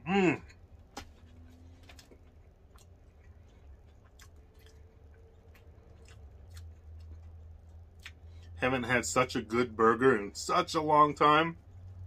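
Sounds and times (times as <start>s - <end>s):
person chewing: 0.4s - 8.6s.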